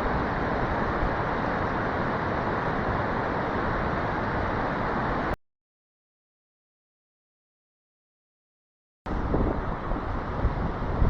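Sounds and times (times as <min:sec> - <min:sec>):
stream water rushing: 0:00.0 - 0:05.4, 0:09.1 - 0:11.0.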